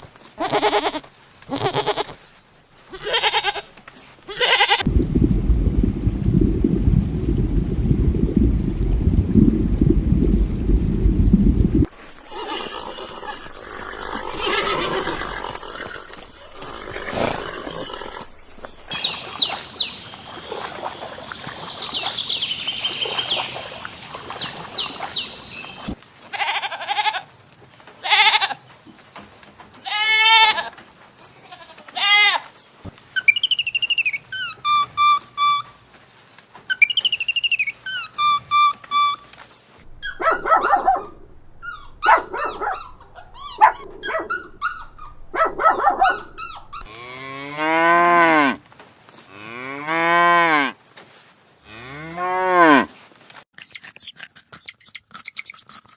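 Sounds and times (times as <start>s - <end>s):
goats bleating: 0.4s - 2.2s, 2.9s - 3.7s.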